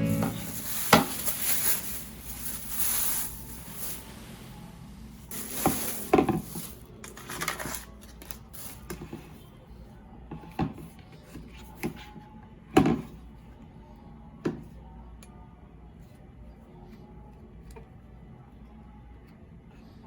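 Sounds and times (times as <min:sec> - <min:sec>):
kitchen items clattering: 0:00.0 - 0:04.4, 0:05.2 - 0:09.3.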